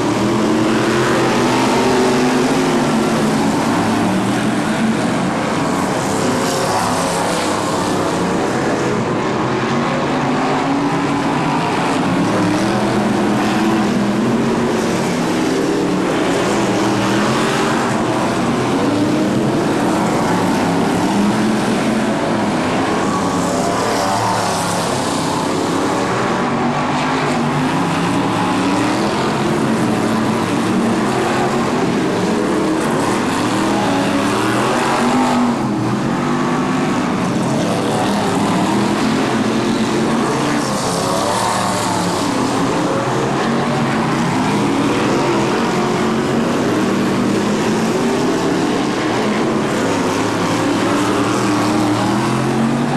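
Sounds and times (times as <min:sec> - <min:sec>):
racing car engines: 0:00.0 - 0:52.9.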